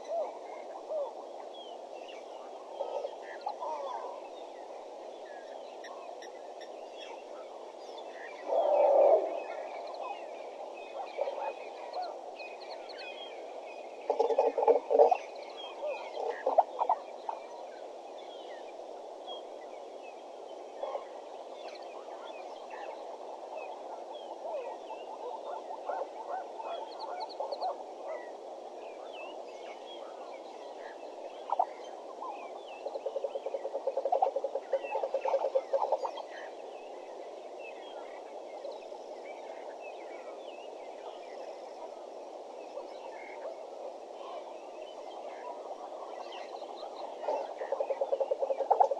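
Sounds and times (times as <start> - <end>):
background bird chorus: 0.0 - 48.9
bird clucking calls: 14.1 - 15.2, 32.9 - 36.2, 47.2 - 48.9.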